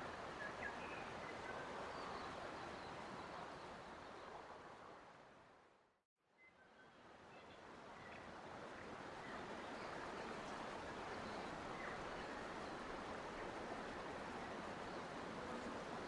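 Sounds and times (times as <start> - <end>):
stream water rushing: 7.8 - 16.0.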